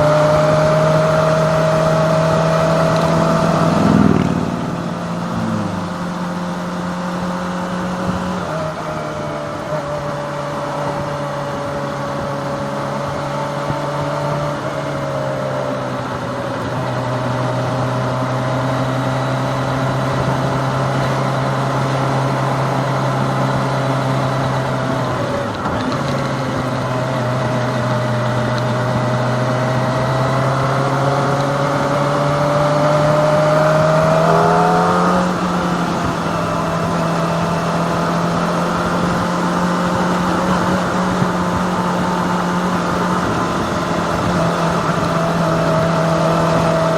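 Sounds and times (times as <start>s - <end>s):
rush of wind noise: 0.0s - 6.5s, 30.8s - 46.9s
motorcycle engine running: 0.0s - 46.9s.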